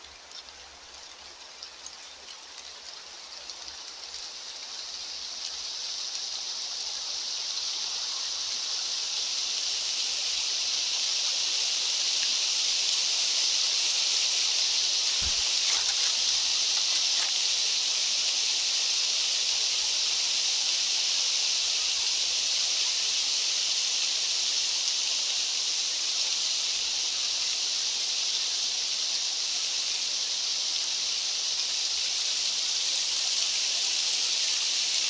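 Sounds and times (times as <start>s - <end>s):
outdoor ambient hiss: 0.0s - 35.0s
faint ticks: 15.1s - 17.4s.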